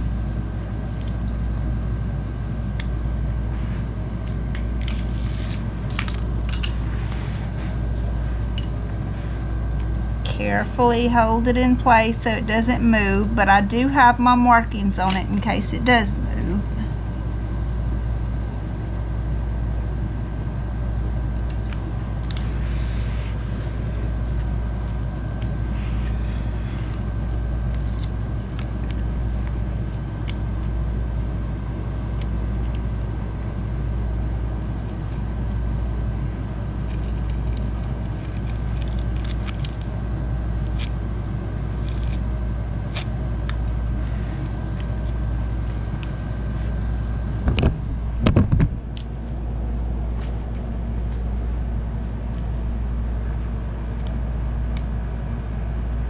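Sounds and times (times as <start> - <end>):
faint steady whine: 0.0 - 56.0
loud steady low hum: 0.0 - 56.0
utility knife scratching linoleum: 41.7 - 42.2.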